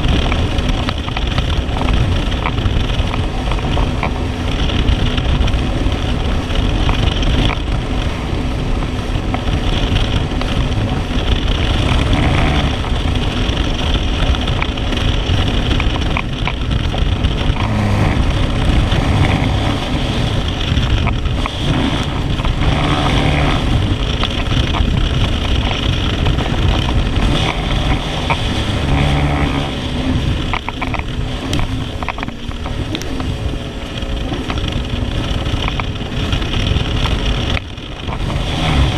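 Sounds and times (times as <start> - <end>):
jet ski engine drone: 0.0 - 38.9
wind rushing on microphone: 0.0 - 38.9.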